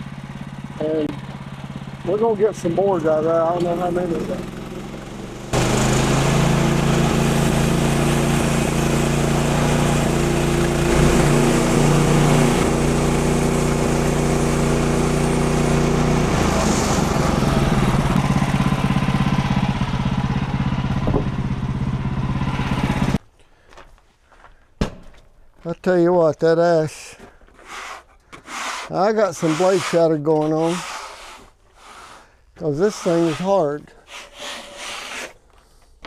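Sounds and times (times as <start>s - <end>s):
bandsaw blade sawing log: 0.8s - 20.3s, 27.5s - 35.9s.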